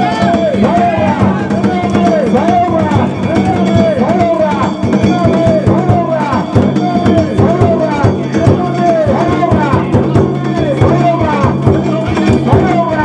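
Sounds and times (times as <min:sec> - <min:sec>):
drum beating fast rhythm: 0:00.0 - 0:13.0.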